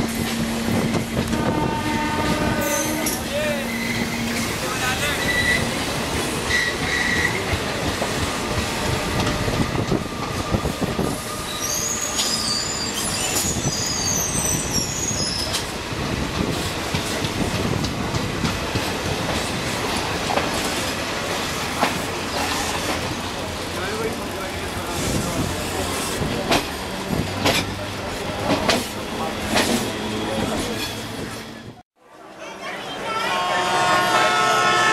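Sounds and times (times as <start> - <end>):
train wheels rumbling on track: 0.0 - 31.8
wheels squealing: 11.0 - 15.7.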